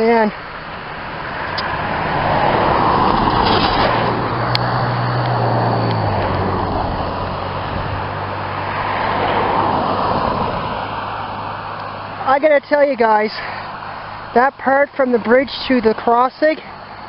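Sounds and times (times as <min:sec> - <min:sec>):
vehicle engine hum: 0:00.0 - 0:17.0
tyre noise: 0:01.5 - 0:08.2.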